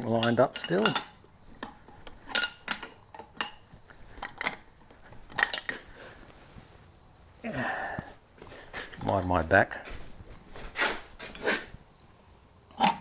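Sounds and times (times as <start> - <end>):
steel tools clinking together: 0.2 - 1.2, 2.3 - 3.6.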